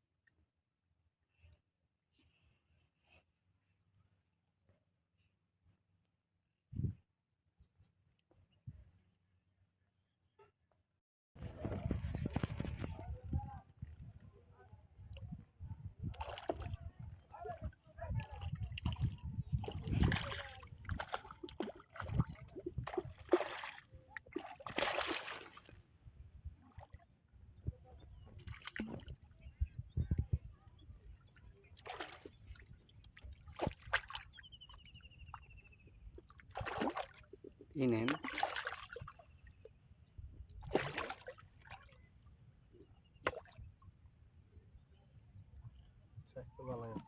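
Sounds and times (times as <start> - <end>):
water splashing beside a boat: 16.1 - 25.8, 28.4 - 29.2, 31.7 - 35.4, 36.2 - 39.2, 40.6 - 41.9
water splashing and dripping: 18.8 - 25.7.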